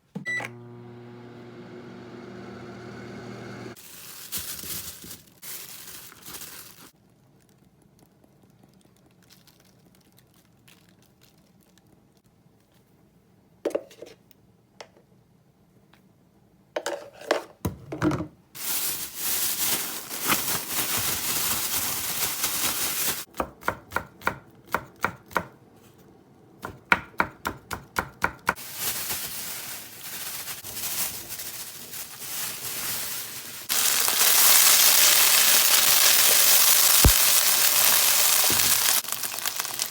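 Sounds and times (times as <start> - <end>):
knife chopping on cutting board: 26.6 - 28.5
food sizzling in pan: 33.3 - 39.9.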